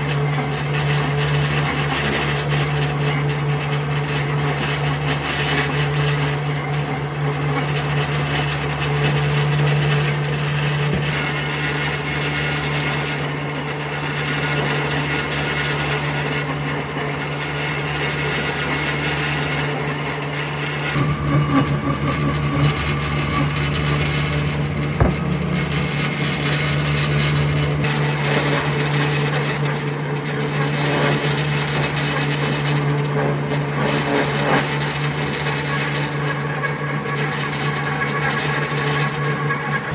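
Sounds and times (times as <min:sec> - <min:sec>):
electric power tool cutting wood: 0:00.0 - 0:39.9
sharp knock: 0:24.9 - 0:25.8.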